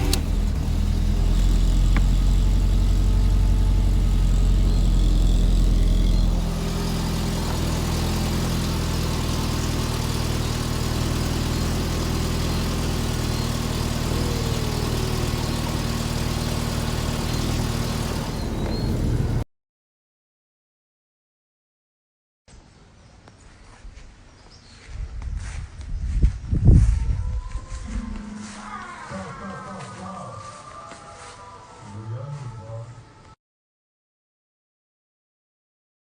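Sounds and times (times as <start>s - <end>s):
car engine idling: 0.0s - 19.4s.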